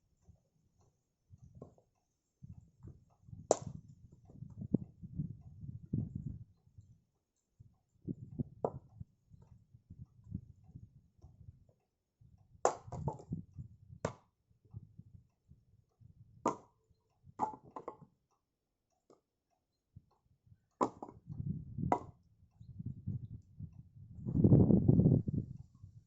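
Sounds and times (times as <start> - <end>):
firewood chopping knocks: 3.5 - 3.7, 12.7 - 13.3, 16.5 - 16.7, 17.4 - 18.0, 20.8 - 21.2, 21.9 - 22.1.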